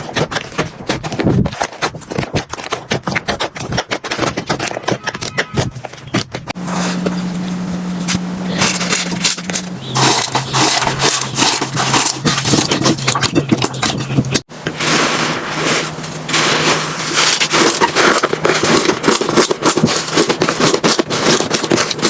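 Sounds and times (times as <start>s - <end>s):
slime crackling and squishing: 0.0s - 7.1s, 8.6s - 22.0s
low hum: 6.5s - 18.4s.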